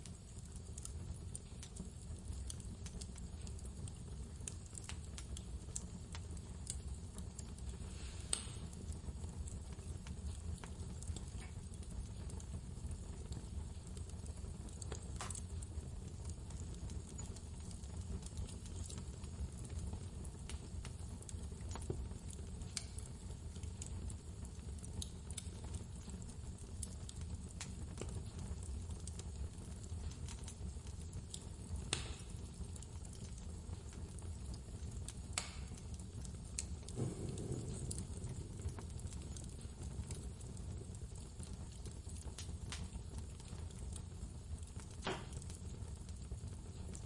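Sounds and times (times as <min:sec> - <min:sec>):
fireplace crackling and popping: 0:00.0 - 0:47.0
blizzard wind rumble: 0:37.0 - 0:38.7.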